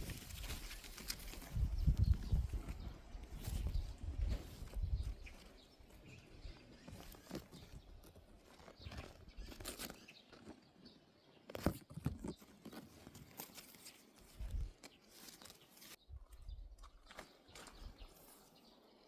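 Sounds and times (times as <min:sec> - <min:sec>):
faint crunches and knocks: 0:00.0 - 0:16.0.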